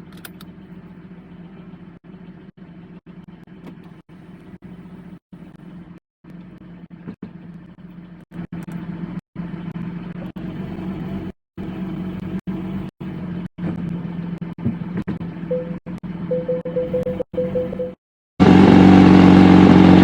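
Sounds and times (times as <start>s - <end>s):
faint pulsing tone: 15.5s - 18.0s.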